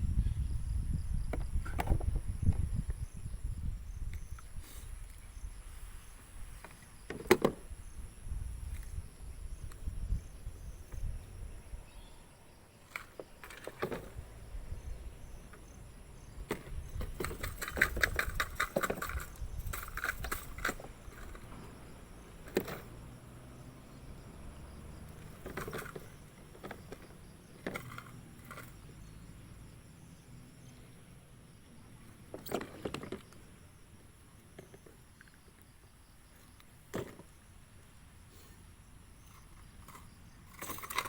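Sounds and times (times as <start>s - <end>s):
wind rumble on microphone: 0.0s - 12.5s, 14.0s - 30.6s.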